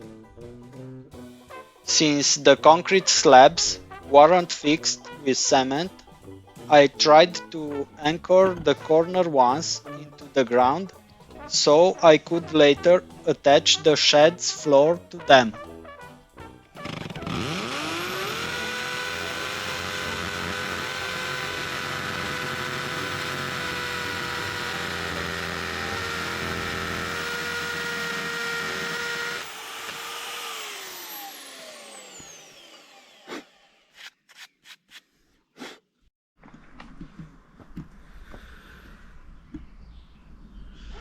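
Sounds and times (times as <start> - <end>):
power tool whining: 7.0 - 10.8, 16.7 - 34.2.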